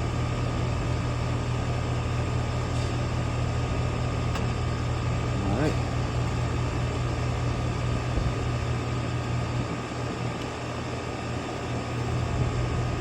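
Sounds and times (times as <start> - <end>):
air conditioning hum: 0.0 - 13.0.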